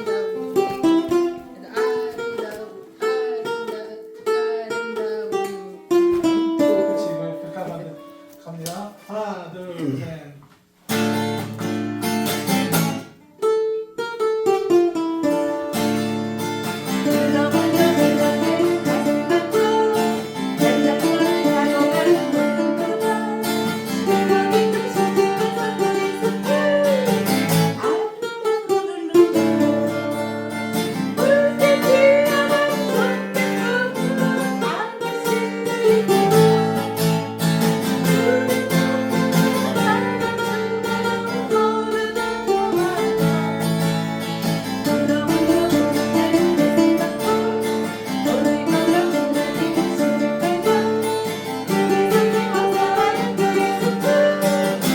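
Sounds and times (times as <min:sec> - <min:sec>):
person singing: 0:00.0 - 0:07.3, 0:16.8 - 0:43.9, 0:44.6 - 0:54.9
acoustic guitar and ukulele strumming: 0:00.0 - 0:54.9.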